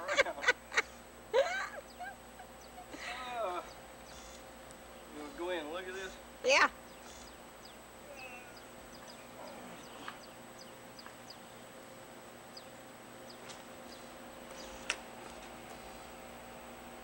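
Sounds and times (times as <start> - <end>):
steady hum: 0.0 - 17.0
high bird chirps: 6.8 - 11.7.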